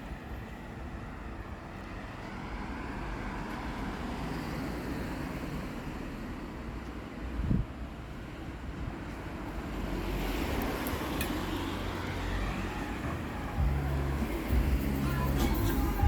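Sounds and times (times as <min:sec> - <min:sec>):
vehicle passing: 0:09.7 - 0:16.0
low engine hum: 0:09.8 - 0:16.0.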